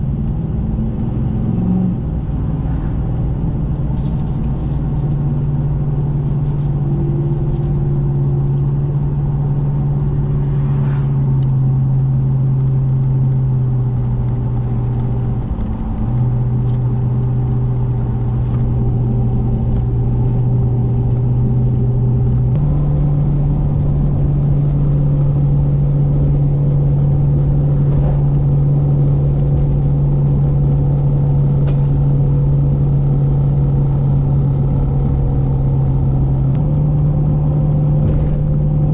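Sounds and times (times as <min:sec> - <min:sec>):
road noise: 0:00.0 - 0:38.9
truck engine drone: 0:00.0 - 0:38.9.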